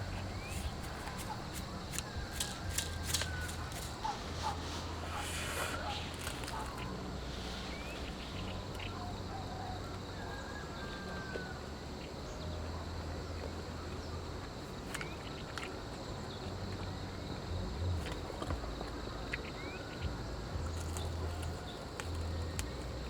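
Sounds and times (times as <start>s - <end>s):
bird chirps: 0.0s - 11.4s
insects chirring: 0.0s - 23.0s.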